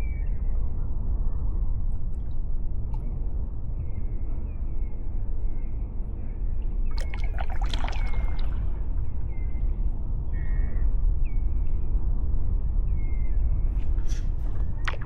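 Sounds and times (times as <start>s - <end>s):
low wind rumble on microphone: 0.0s - 15.0s
kayak paddle splashing: 6.9s - 8.9s.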